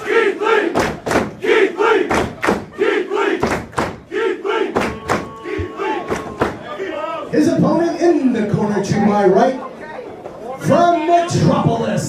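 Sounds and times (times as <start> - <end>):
sharp rhythmic beats: 0.0 - 6.7
crowd chanting in unison: 0.0 - 7.3.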